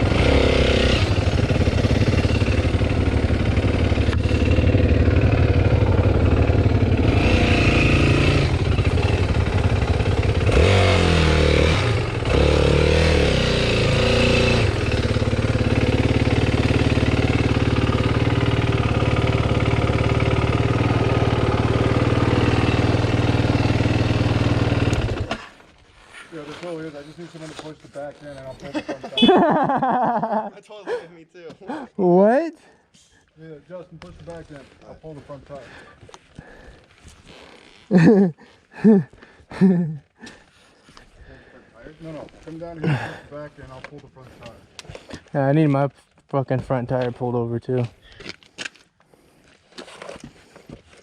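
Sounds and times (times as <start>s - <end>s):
dirt bike engine revving: 0.0s - 25.6s.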